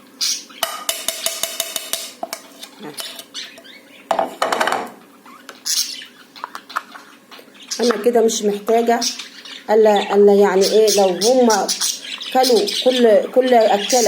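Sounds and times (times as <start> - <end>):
spoon tapping on a dish: 0.6 - 2.4
spoon scraping a dish: 2.2 - 3.6.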